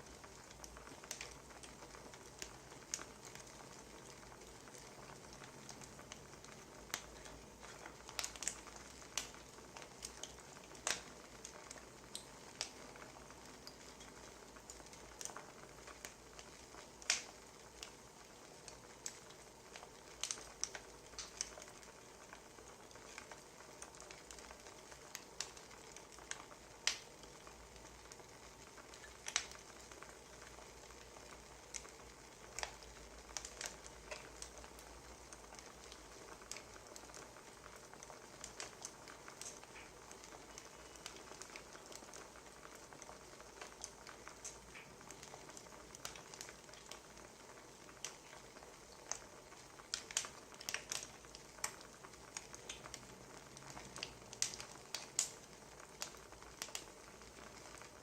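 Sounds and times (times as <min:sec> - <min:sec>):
sharp pops and snaps: 0:00.0 - 0:58.0
wood fire crackling: 0:00.0 - 0:58.0.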